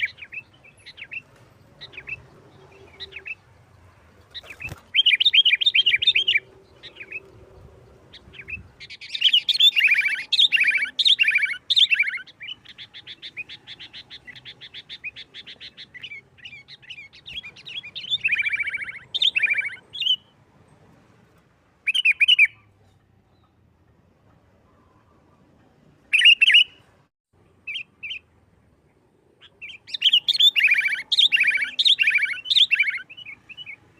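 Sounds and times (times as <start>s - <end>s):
bulbul singing chattering notes: 8.1s - 20.2s, 29.5s - 33.8s.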